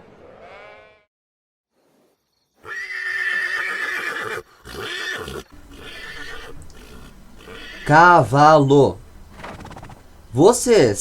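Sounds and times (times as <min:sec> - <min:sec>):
horse whinnying: 0:02.6 - 0:06.6, 0:09.3 - 0:10.1.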